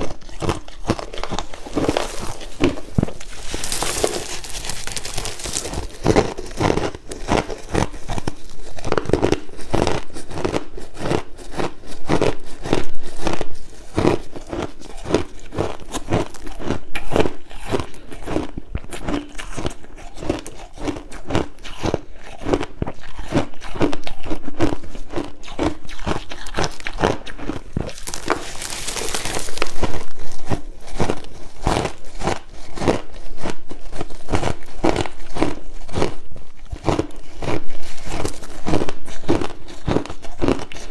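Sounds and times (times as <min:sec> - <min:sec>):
crushed ice being chewed: 0:00.0 - 0:40.9.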